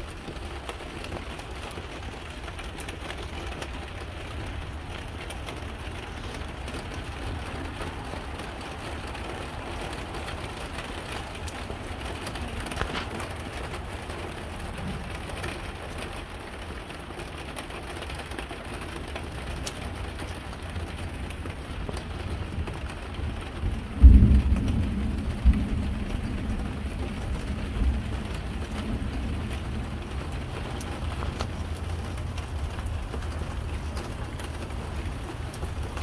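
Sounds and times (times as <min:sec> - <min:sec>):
raindrops ticking close by: 0:00.0 - 0:36.0
steady rain falling: 0:00.0 - 0:36.0
low thunder rumble: 0:20.7 - 0:36.0.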